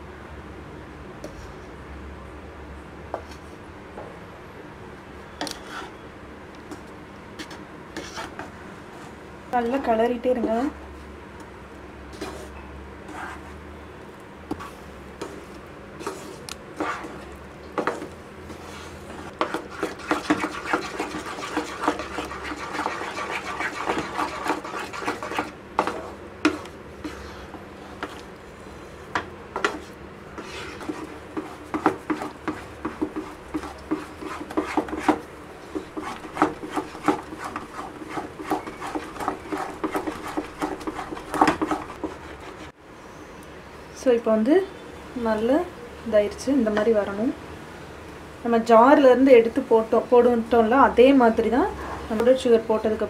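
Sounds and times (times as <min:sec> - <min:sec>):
utensil scraping a metal pan: 0:16.0 - 0:28.2, 0:29.6 - 0:42.7.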